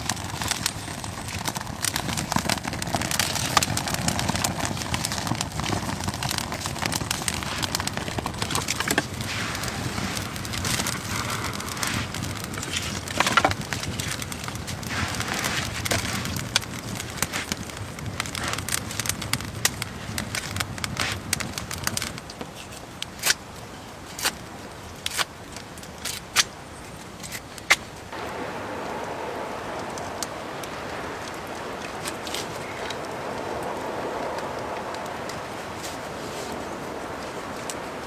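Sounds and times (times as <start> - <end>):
wood crackling and snapping: 0.0 - 38.0.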